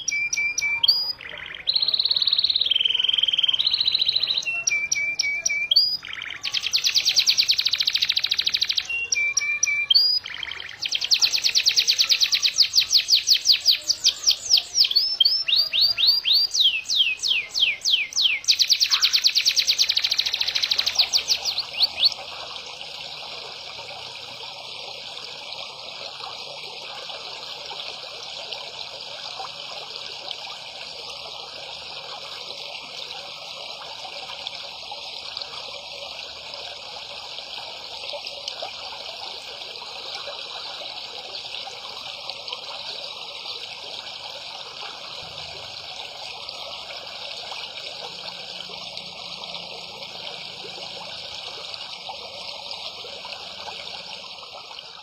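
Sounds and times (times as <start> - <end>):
songbird chirping rapidly: 0.0 - 22.4.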